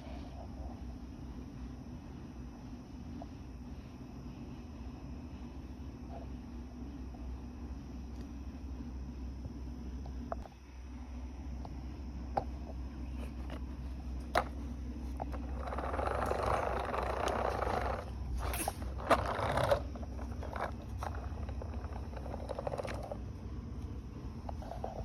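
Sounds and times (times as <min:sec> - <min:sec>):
electric fan humming: 0:00.0 - 0:25.0.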